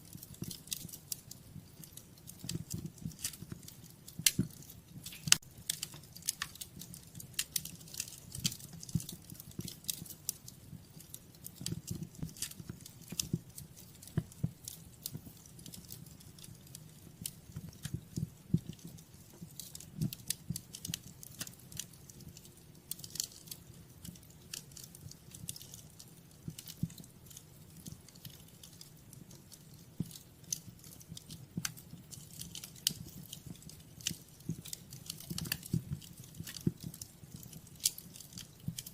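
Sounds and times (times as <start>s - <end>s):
wood fire pops and snaps: 0.0s - 38.9s.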